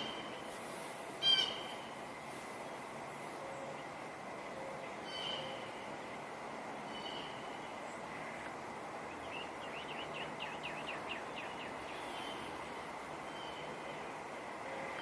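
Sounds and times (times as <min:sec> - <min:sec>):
wind: 0:00.0 - 0:15.0
bird chirping: 0:09.1 - 0:12.4.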